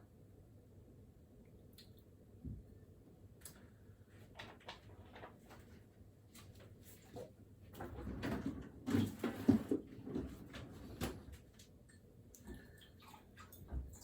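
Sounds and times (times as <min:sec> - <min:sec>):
soft handling knocks and rustles: 0:04.2 - 0:11.7.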